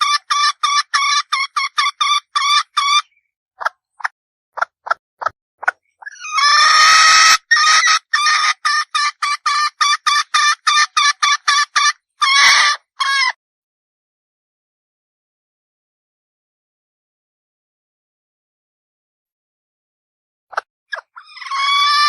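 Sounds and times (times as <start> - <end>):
hen squawking: 0.0 - 3.7, 6.0 - 13.4, 20.9 - 22.0
hen clucking: 0.0 - 13.4.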